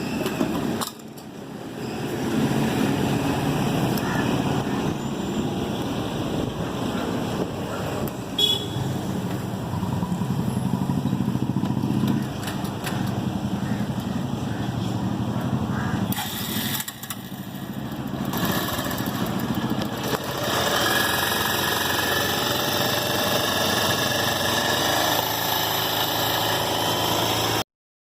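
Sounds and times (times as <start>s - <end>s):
motorcycle engine running: 8.4s - 27.6s.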